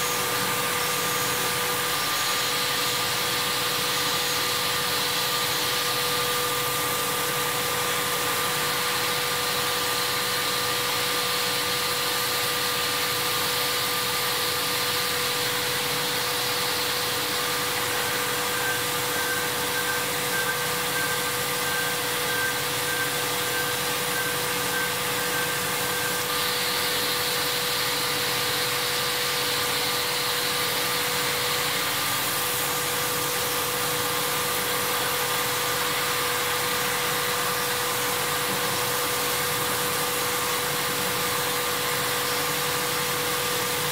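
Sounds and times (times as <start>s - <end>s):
machine steady whine: 0.0s - 43.9s
rushing machining noise: 0.0s - 43.9s
higher machine tone: 17.3s - 26.7s.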